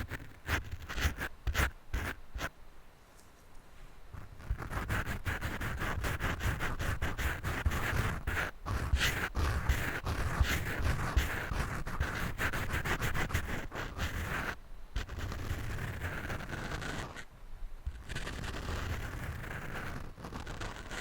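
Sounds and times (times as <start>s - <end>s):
scratching on a microphone: 0.0s - 2.5s, 4.1s - 17.3s, 17.9s - 21.0s.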